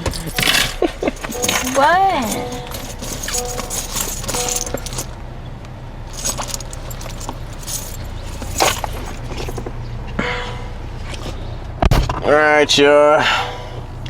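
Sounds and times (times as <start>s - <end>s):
keys jangling: 0.0s - 5.2s, 6.0s - 9.6s.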